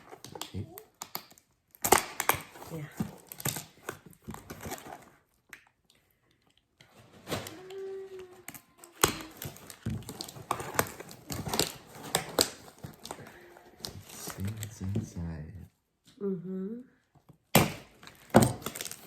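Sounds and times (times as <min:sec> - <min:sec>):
cardboard package being opened: 0:00.0 - 0:05.4, 0:06.8 - 0:15.0, 0:17.8 - 0:19.0.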